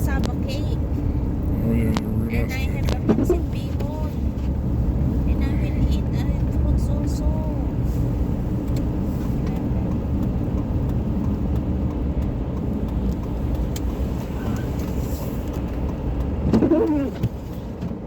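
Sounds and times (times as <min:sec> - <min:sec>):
car road and engine rumble: 0:00.0 - 0:18.0
short voice-like sound: 0:01.5 - 0:02.5.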